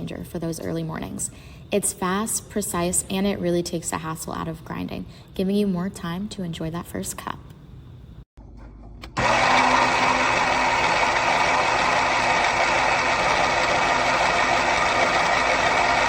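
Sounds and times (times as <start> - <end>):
coffee grinder motor grinding: 9.2 - 16.0.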